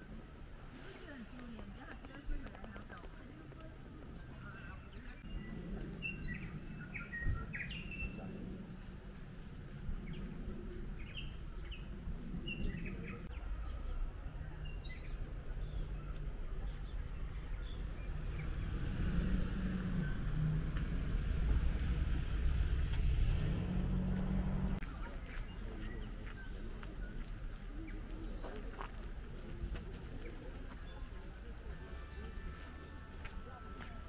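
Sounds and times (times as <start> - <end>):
small birds chirping: 1.0 - 22.8
low rumble: 3.7 - 24.9.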